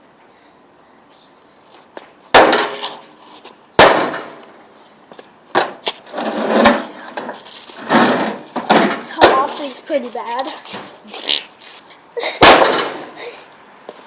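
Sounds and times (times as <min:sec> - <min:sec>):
clattering and rattling: 0:05.6 - 0:09.5.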